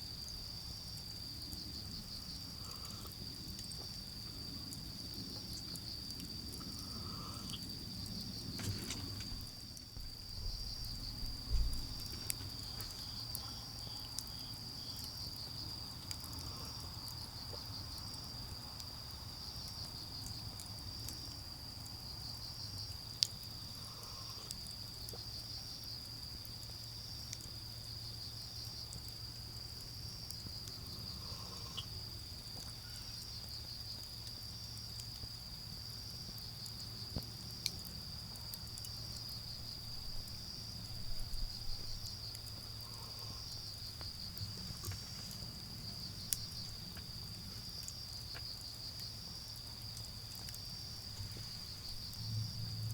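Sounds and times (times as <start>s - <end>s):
crickets trilling: 0.0s - 52.9s
burning wood snapping: 8.4s - 13.6s.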